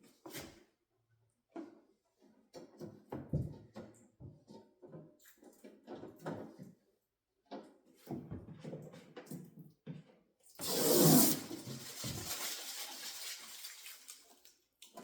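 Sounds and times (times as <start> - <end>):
packaging rustling: 10.6 - 13.8.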